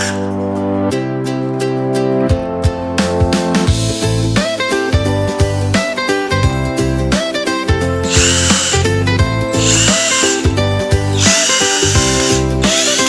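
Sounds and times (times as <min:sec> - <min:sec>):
background music: 0:00.0 - 0:13.0
power drill-driver running: 0:08.1 - 0:09.0, 0:09.6 - 0:10.5, 0:11.2 - 0:13.0.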